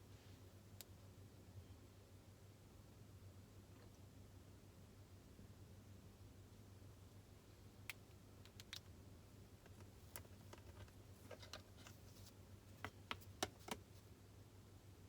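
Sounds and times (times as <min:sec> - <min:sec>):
faint low hum: 0:00.0 - 0:15.0
light clicks and taps: 0:09.6 - 0:14.0.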